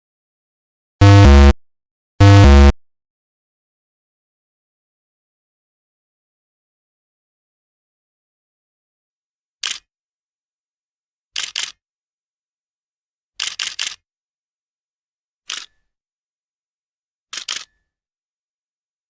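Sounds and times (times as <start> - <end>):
camera shutter clicks: 9.6 - 9.8, 13.4 - 14.0, 17.3 - 17.7.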